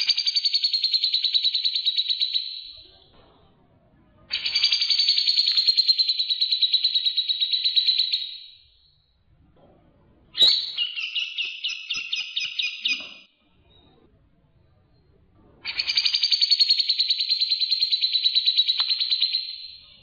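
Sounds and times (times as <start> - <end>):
bird sharp chirping notes: 10.4 - 13.3
songbird chattering trill: 10.4 - 13.3.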